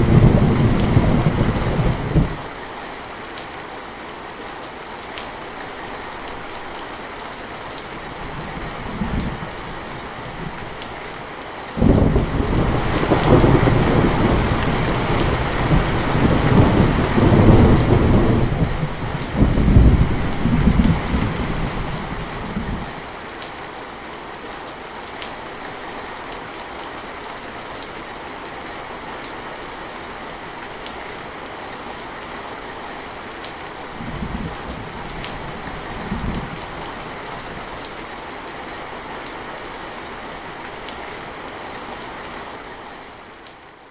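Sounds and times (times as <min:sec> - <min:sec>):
thunder rumbling: 0:00.0 - 0:02.5, 0:11.8 - 0:23.0
steady rain: 0:00.0 - 0:43.9.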